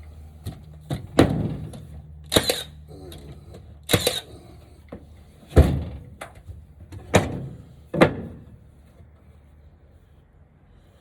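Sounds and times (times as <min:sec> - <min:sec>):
wooden lumber thuds: 0:01.0 - 0:01.9, 0:05.4 - 0:08.8.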